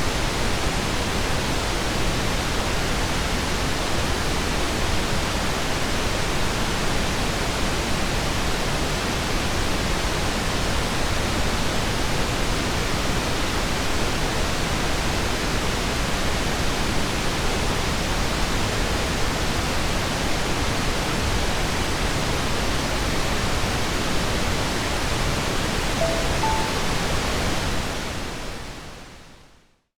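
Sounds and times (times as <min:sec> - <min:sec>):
soft alarm tones: 0:26.0 - 0:27.2.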